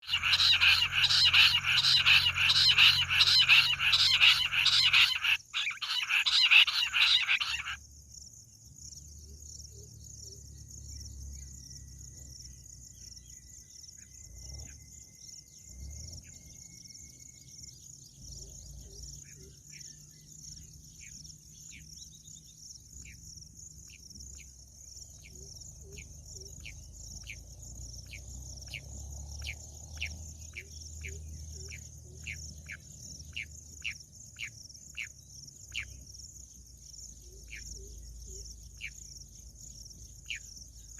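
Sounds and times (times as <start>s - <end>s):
chattering quail calls: 0.0s - 7.8s
high insect trill: 0.0s - 40.9s.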